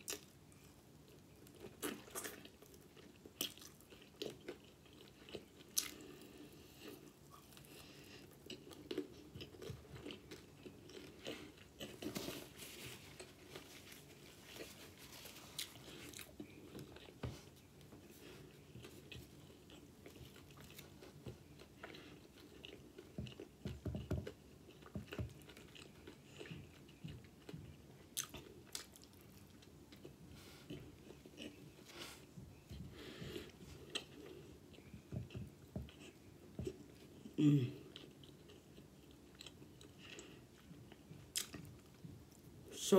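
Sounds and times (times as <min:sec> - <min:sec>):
chewing crunchy chicken wings: 0:01.1 - 0:13.7, 0:15.4 - 0:31.8.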